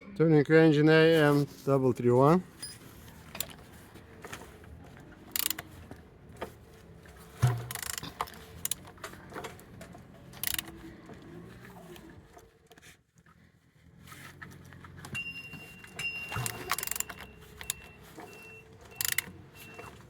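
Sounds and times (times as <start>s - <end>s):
engine turned over by hand: 2.3s - 20.0s
heavy clunk: 6.4s - 10.1s.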